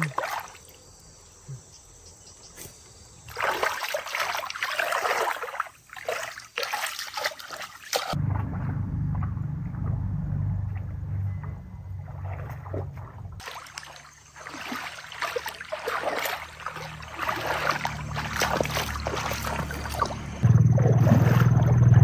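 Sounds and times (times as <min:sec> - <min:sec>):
water splashing and sloshing: 0:00.0 - 0:00.9, 0:03.2 - 0:22.0
low steady hum: 0:08.2 - 0:13.4, 0:16.7 - 0:22.0.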